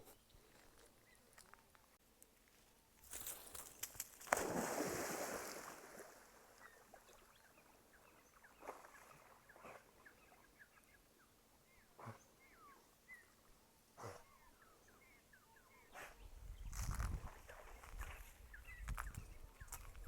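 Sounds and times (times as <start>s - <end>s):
splash in river water: 3.3s - 7.2s.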